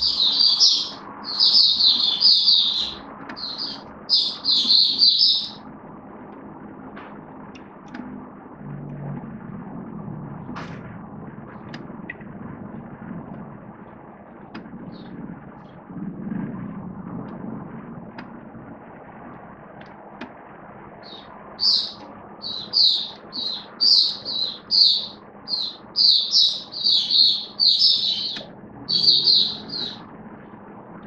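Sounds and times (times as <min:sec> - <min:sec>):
bird singing whistled phrases: 0:00.0 - 0:05.6, 0:21.0 - 0:30.0
low hum: 0:00.0 - 0:31.0.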